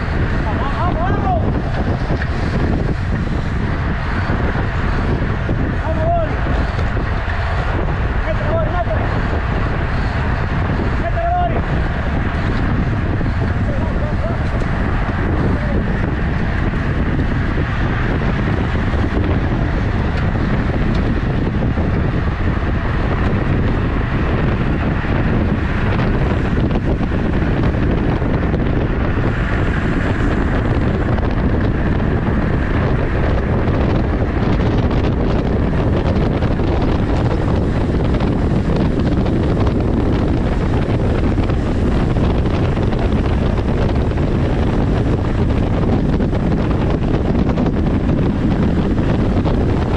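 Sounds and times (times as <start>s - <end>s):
wind buffeting microphone: 0.0s - 49.9s.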